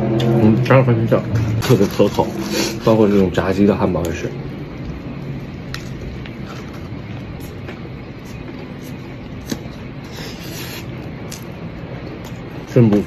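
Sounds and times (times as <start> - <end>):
low background hum: 0.0 - 13.0
crackling rustle: 1.4 - 3.4.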